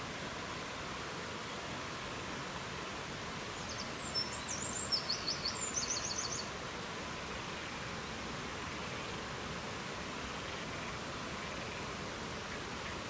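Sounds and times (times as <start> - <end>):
songbird singing with trill: 3.6 - 6.5.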